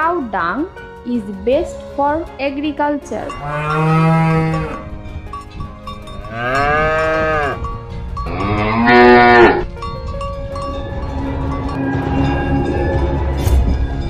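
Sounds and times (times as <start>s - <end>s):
cows mooing: 3.4s - 4.9s, 6.2s - 9.7s.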